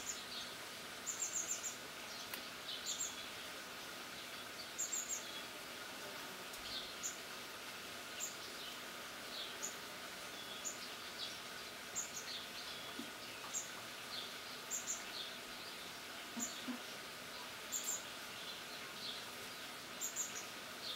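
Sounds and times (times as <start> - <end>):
small birds chirping: 0.0 - 5.6, 6.5 - 7.3, 8.0 - 20.9
steady outdoor hiss: 0.0 - 20.9.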